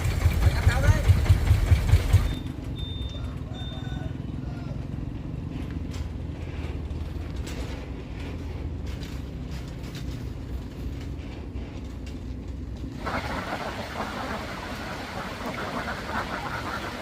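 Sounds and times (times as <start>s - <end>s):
engine running steadily: 0.0s - 17.0s
flock of ducks quacking: 13.0s - 17.0s.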